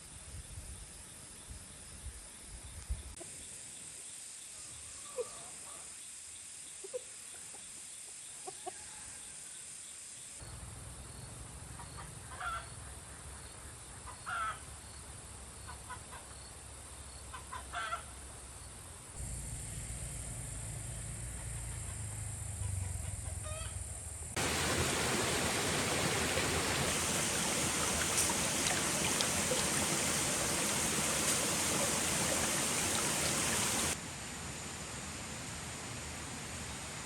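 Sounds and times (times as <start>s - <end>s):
steady high hiss: 24.3s - 37.0s
chickens clucking: 24.4s - 34.0s.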